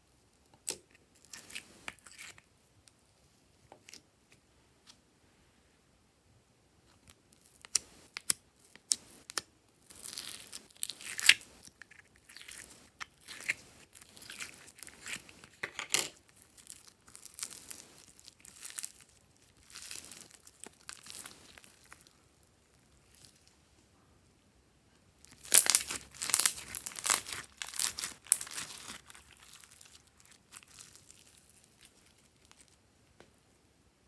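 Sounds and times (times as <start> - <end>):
slime sticky clicks and crackling: 25.3 - 32.8.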